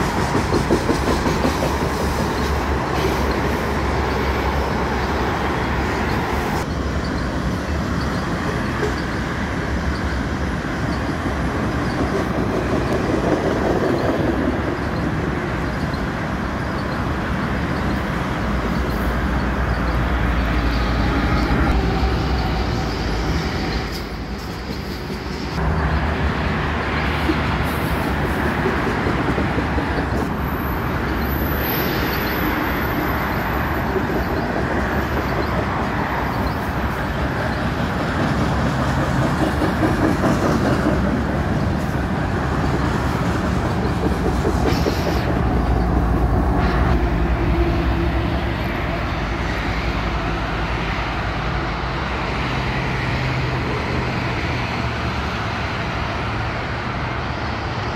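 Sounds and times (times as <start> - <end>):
freight train wheels rumbling: 0.0 - 57.9
highway traffic: 0.0 - 57.9.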